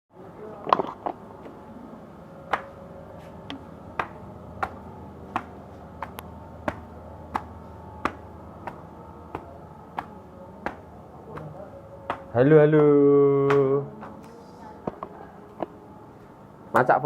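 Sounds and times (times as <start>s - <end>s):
faint steady hum: 0.1s - 17.0s
sharp rhythmic clicks: 3.9s - 15.0s.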